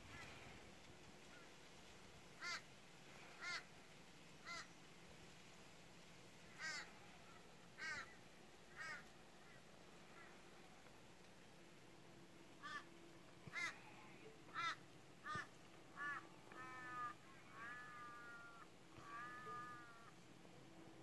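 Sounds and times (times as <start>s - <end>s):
faint steady hiss: 0.0s - 21.0s
bird calling: 12.6s - 20.2s.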